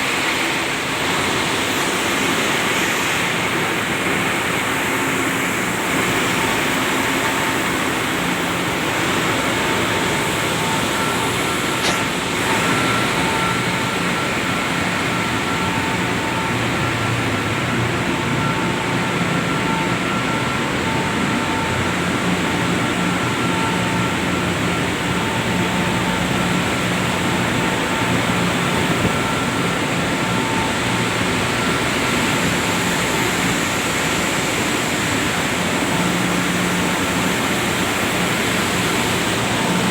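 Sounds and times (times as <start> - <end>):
diesel engines roaring: 0.0 - 39.9
faint high whine: 0.3 - 39.9
sharp click: 11.8 - 12.1.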